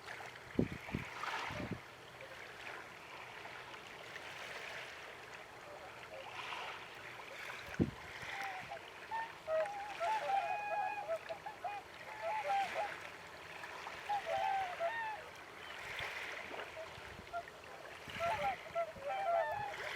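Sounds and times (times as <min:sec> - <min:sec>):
swans honking: 0:08.3 - 0:13.0, 0:14.0 - 0:15.8, 0:16.8 - 0:19.9.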